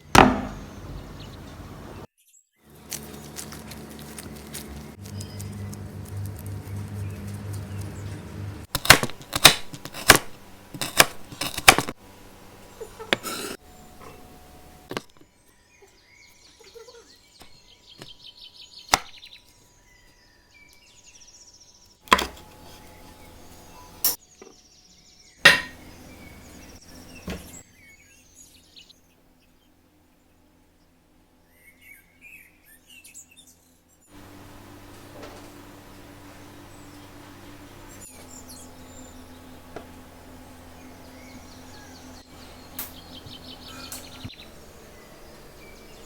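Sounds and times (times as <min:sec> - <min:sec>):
sharp knocks: 0:00.0 - 0:00.6
small birds chirping: 0:00.4 - 0:08.9, 0:12.6 - 0:22.0, 0:22.6 - 0:34.9, 0:35.5 - 0:46.0.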